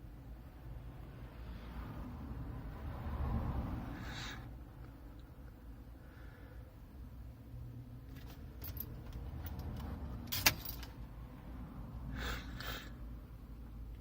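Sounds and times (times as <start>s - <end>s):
car keys jangling: 8.1s - 11.0s.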